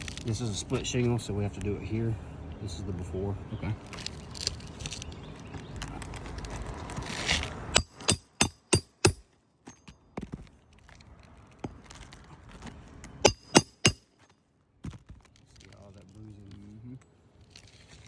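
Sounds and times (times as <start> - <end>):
rustling and scraping on shingles: 0.0 - 1.8, 3.8 - 8.1, 9.7 - 13.2, 14.1 - 18.0
hammer striking metal: 7.8 - 9.8, 13.2 - 14.1.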